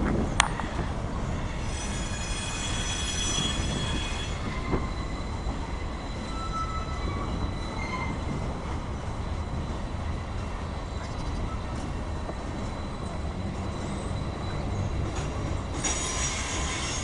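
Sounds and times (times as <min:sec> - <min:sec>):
freight train rumbling past: 0:00.0 - 0:17.0
train wheels squealing: 0:00.5 - 0:17.0.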